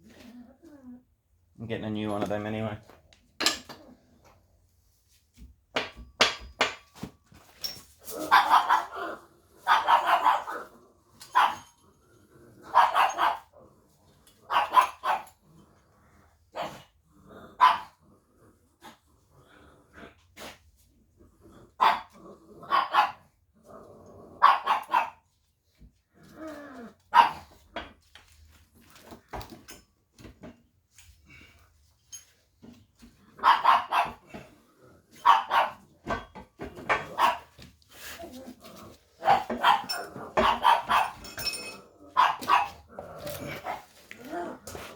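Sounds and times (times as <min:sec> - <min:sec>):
sharp knocks and clinks: 0:03.4 - 0:03.8, 0:05.8 - 0:08.0, 0:39.5 - 0:41.9
dog barking: 0:08.2 - 0:09.0, 0:09.6 - 0:10.6, 0:11.3 - 0:11.7, 0:12.7 - 0:13.5, 0:14.5 - 0:15.3, 0:17.6 - 0:17.9, 0:21.8 - 0:22.1, 0:22.7 - 0:23.2, 0:24.4 - 0:25.2, 0:27.1 - 0:27.5, 0:33.4 - 0:34.3, 0:35.2 - 0:35.8, 0:37.1 - 0:37.5, 0:39.2 - 0:41.3, 0:42.2 - 0:42.8.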